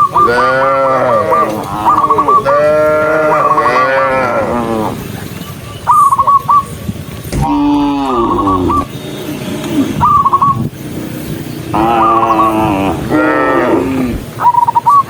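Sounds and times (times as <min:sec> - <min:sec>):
cattle mooing: 0:00.2 - 0:05.0, 0:07.4 - 0:08.9, 0:11.7 - 0:14.3.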